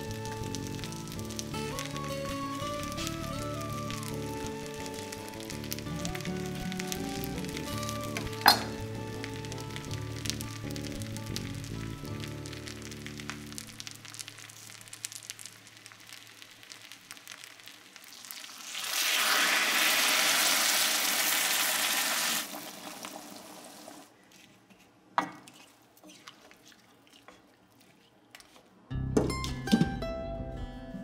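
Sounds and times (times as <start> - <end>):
food crackling in frying pan: 0.0 - 24.1
water hissing in hot pan: 0.0 - 24.1
knock on pan: 8.4 - 8.8.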